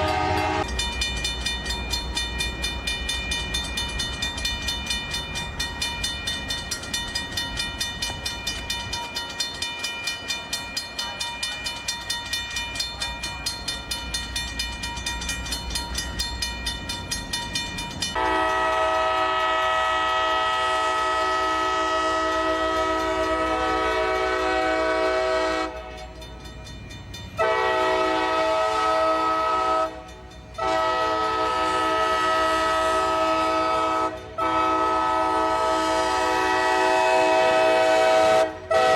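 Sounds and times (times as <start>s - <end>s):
locomotive air horn blasts: 0.0s - 0.7s, 18.2s - 25.9s, 27.4s - 38.9s
railroad crossing bell ringing: 0.0s - 38.9s.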